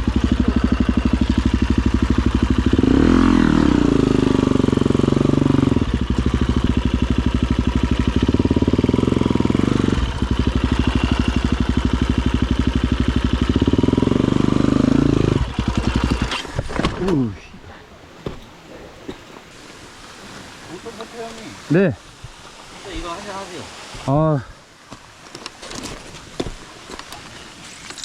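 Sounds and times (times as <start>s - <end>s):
dirt bike engine revving: 0.0s - 17.2s.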